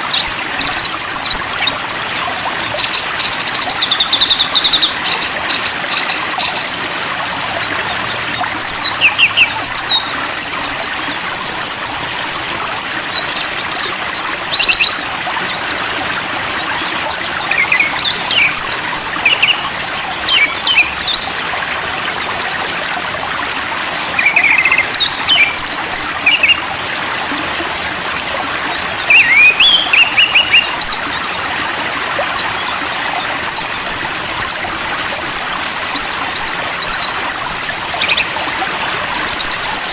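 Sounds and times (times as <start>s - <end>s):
running water: 0.0s - 39.9s
songbird whistles and trills: 8.1s - 15.0s, 17.4s - 21.4s, 24.2s - 26.6s, 29.0s - 31.1s, 32.4s - 38.3s.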